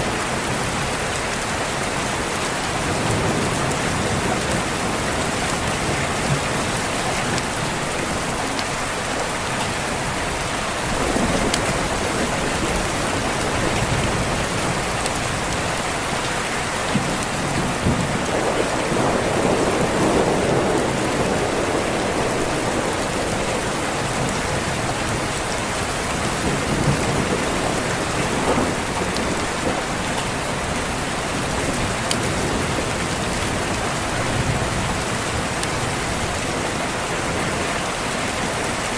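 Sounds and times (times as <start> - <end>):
heavy rain hiss: 0.0 - 38.9
distant thunder rolling: 10.2 - 15.9, 16.9 - 36.7.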